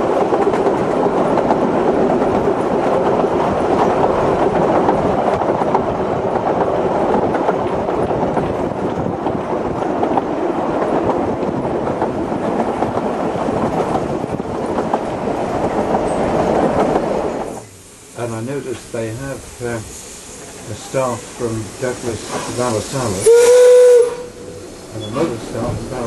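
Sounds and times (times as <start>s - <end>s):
wheels clicking over track: 0.0s - 17.7s
train wheels rumbling on rails: 0.0s - 26.0s.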